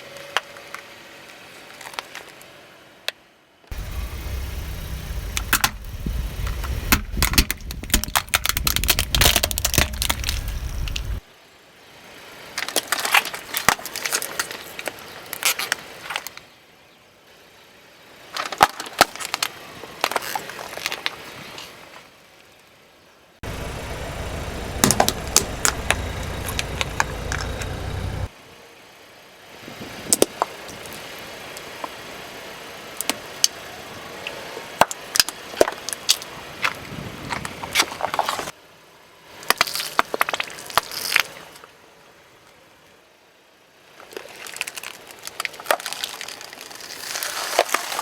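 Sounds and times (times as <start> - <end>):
engine and tyres rumbling: 3.7 - 11.2, 23.4 - 28.3
tyre crushing brittle objects: 5.4 - 11.2, 44.4 - 48.0.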